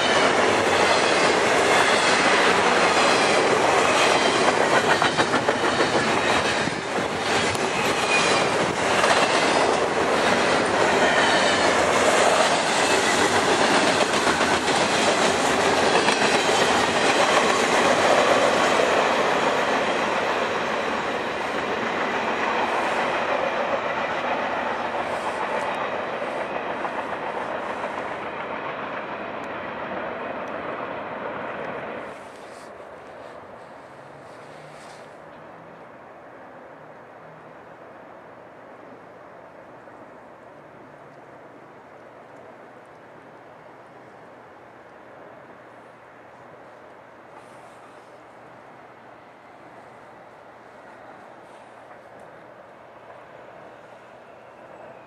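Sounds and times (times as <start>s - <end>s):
train wheels clattering over rail joints: 0.0s - 20.9s.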